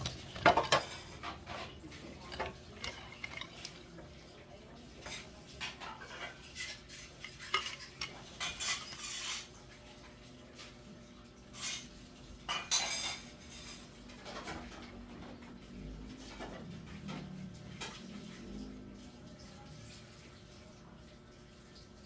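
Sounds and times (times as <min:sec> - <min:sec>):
rustling scrape: 0:00.0 - 0:04.0
small hard items clinking: 0:00.0 - 0:04.0.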